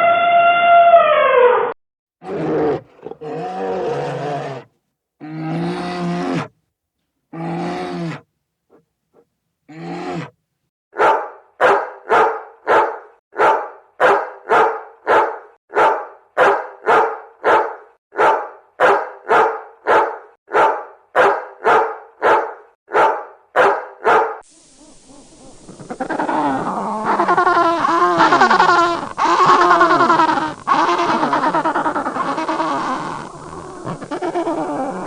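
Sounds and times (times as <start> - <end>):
dog barking: 11.0 - 25.3
steady hiss: 24.5 - 35.0.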